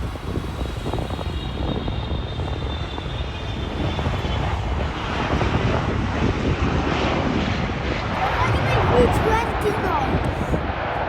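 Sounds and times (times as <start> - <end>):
high engine whine: 0.0 - 6.6
jet engine roar: 0.0 - 11.0.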